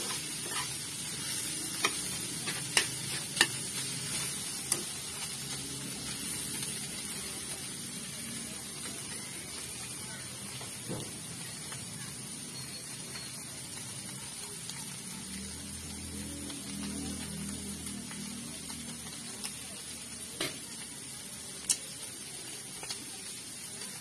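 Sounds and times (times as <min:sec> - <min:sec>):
chicken sizzling in a pan: 0:00.0 - 0:24.0.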